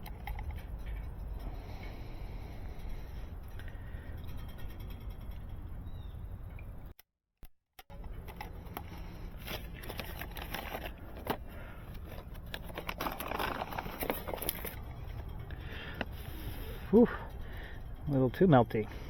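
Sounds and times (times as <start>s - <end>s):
small tools clicking and rustling: 0.0s - 2.1s, 7.8s - 16.8s
steady low hum: 0.0s - 6.9s, 7.9s - 19.0s.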